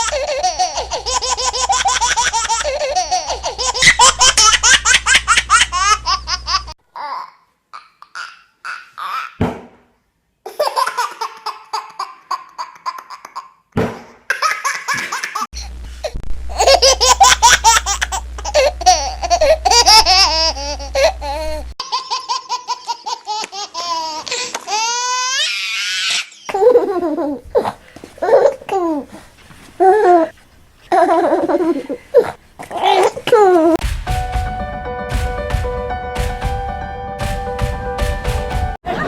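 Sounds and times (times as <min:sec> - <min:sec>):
child giggling: 0:00.0 - 0:07.2, 0:16.5 - 0:25.4, 0:26.5 - 0:29.1, 0:30.9 - 0:33.8
squeals of laughter: 0:22.2 - 0:27.1.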